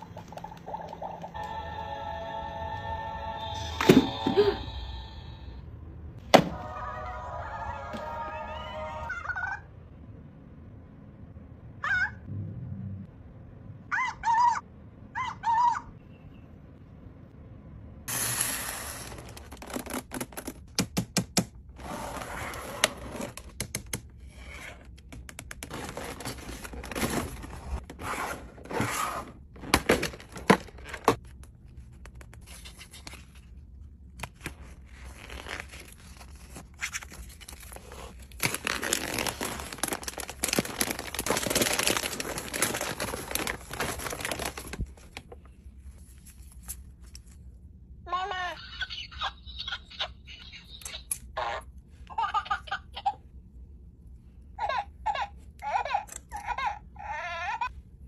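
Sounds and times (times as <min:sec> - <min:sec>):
packaging tearing and crinkling: 0:18.1 - 0:20.7, 0:34.2 - 0:45.3.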